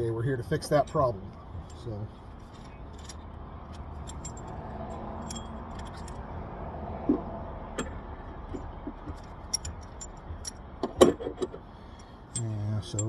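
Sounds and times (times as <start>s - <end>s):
low background hum: 0.0s - 13.0s
metallic clinks of tools: 0.6s - 6.3s, 7.8s - 11.2s, 11.9s - 13.0s.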